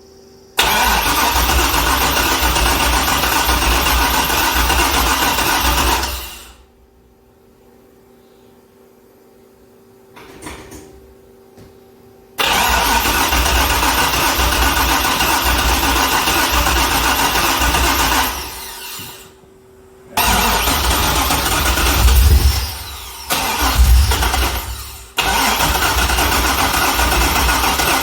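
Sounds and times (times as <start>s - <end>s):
starter cranking engine: 0.6s - 6.6s, 12.4s - 19.0s, 20.2s - 28.0s
faint steady hum: 6.6s - 10.2s.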